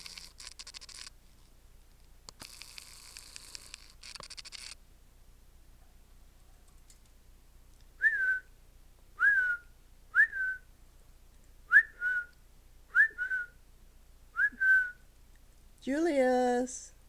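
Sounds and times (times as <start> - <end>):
short whistled notes: 9.2 - 10.6, 11.7 - 12.3, 13.0 - 13.6, 14.4 - 15.0.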